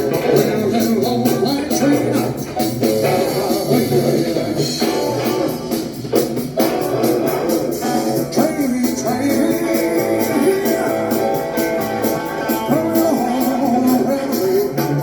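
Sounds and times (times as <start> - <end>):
person singing: 0.0 - 6.0, 7.7 - 15.0
rock and roll band music: 0.0 - 15.0.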